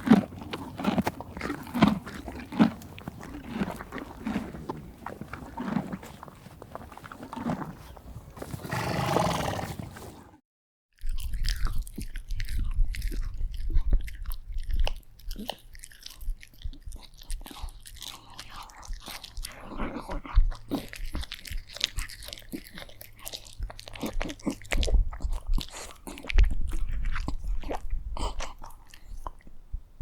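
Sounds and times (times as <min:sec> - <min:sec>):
animal chewing wetly: 0:00.0 - 0:08.2, 0:11.0 - 0:29.6
crunchy biting and chewing: 0:00.0 - 0:10.1, 0:11.0 - 0:29.6
animal grunting: 0:00.0 - 0:10.4.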